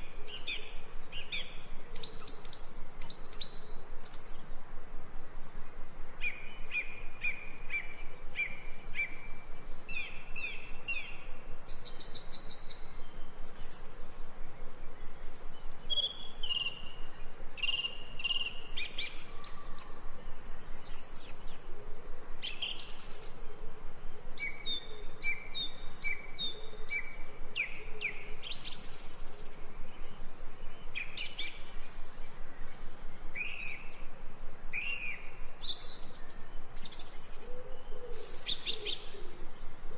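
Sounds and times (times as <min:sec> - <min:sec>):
background hiss: 0:00.0 - 0:39.9
songbirds chirping: 0:00.0 - 0:39.9.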